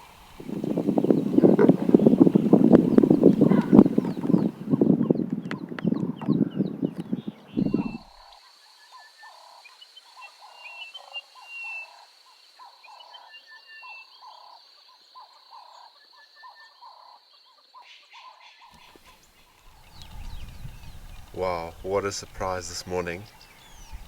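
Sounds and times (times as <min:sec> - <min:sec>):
frog calling: 0:00.0 - 0:04.9, 0:07.5 - 0:16.0, 0:18.8 - 0:24.0
high insect whine: 0:00.0 - 0:05.0, 0:07.1 - 0:14.6, 0:18.9 - 0:24.0
faint bird chirps: 0:00.0 - 0:05.2, 0:05.9 - 0:24.0.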